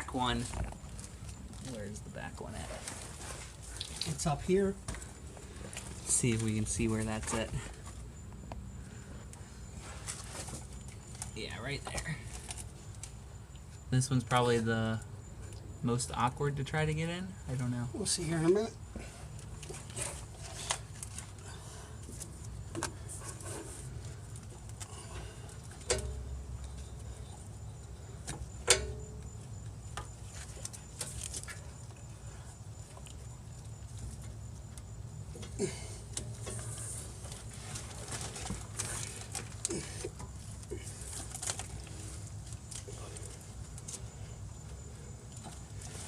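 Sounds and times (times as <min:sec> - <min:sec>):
clinks on metal exhaust pipe: 0:28.6 - 0:29.3.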